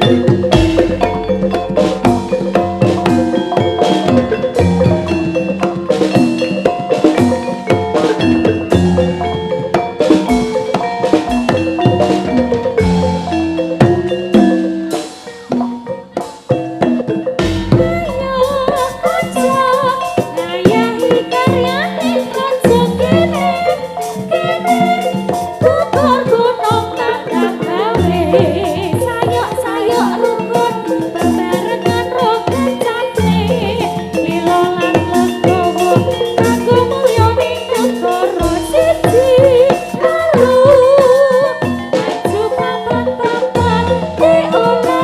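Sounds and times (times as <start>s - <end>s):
gamelan music over loudspeakers: 0.0s - 45.0s
person singing: 17.6s - 45.0s.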